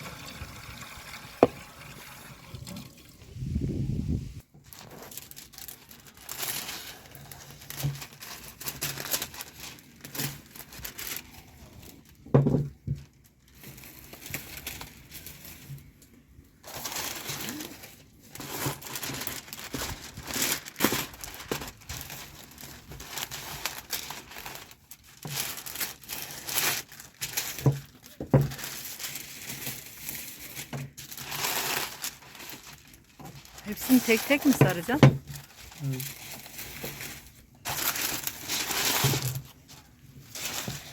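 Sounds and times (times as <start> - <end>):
wrapping material crinkling: 4.4 - 40.9.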